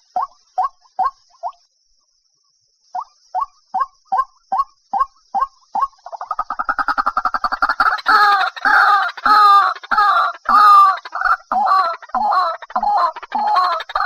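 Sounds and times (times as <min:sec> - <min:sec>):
waterhen calling: 0:05.4 - 0:14.0.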